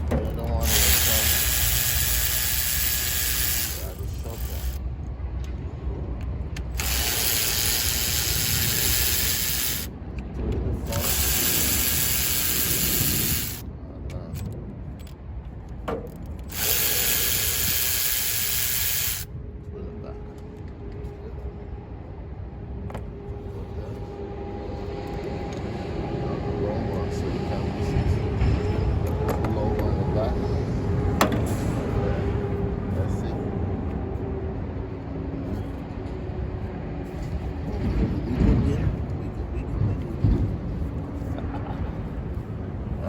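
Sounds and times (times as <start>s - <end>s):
power tool running: 0.6s - 4.8s, 6.7s - 9.9s, 10.8s - 13.6s, 16.5s - 19.3s.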